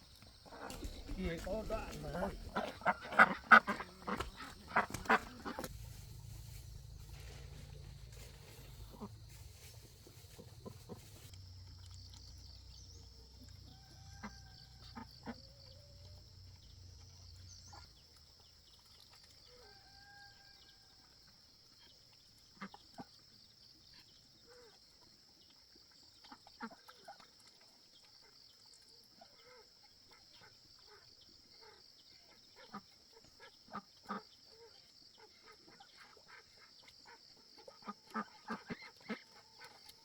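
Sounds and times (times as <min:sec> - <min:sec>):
chickens clucking: 0:00.5 - 0:06.4.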